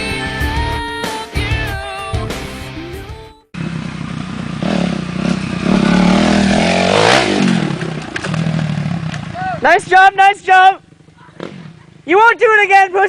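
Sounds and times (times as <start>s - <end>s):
music: 0.0s - 3.5s
dirt bike engine revving: 3.6s - 12.2s.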